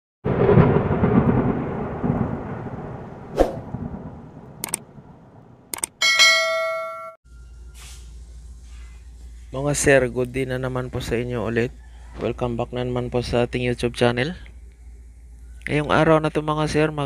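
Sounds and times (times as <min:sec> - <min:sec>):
thunder-like rumble: 0:00.3 - 0:05.7
sharp clicks: 0:04.6 - 0:04.8, 0:05.7 - 0:06.0
bright ringing chime: 0:06.0 - 0:07.2.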